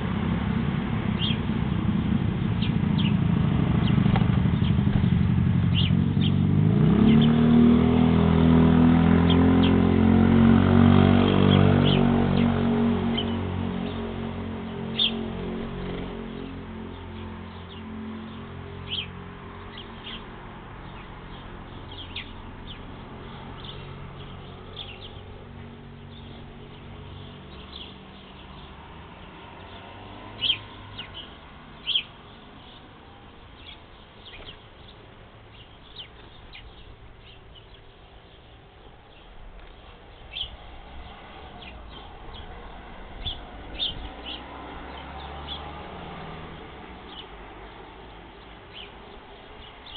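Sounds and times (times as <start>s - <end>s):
small birds chirping: 1.1s - 7.8s, 9.1s - 49.9s.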